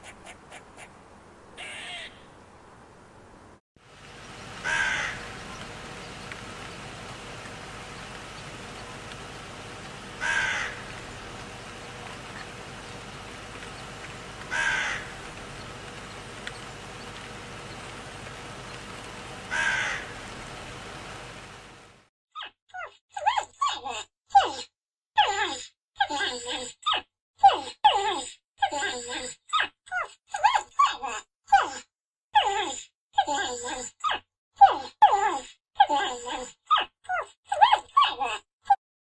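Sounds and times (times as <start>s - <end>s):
steady hiss: 3.9s - 22.0s
animal calling: 4.6s - 20.5s.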